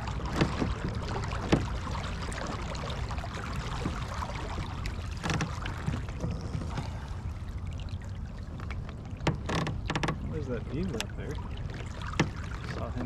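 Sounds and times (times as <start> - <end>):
water splashing against hull: 0.0 - 13.0
knock on kayak: 0.2 - 1.8.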